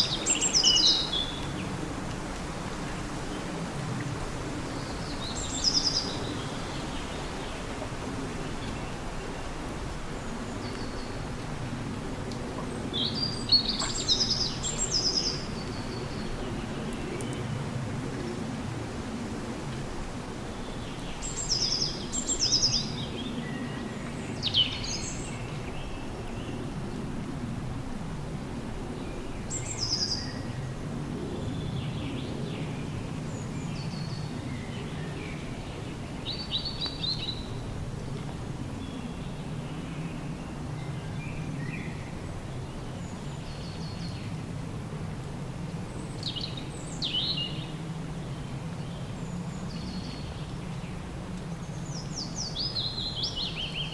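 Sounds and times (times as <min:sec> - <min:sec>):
songbirds singing: 0:00.0 - 0:01.8, 0:12.6 - 0:17.6, 0:20.5 - 0:26.7, 0:29.0 - 0:37.7, 0:45.8 - 0:47.9, 0:48.6 - 0:53.9.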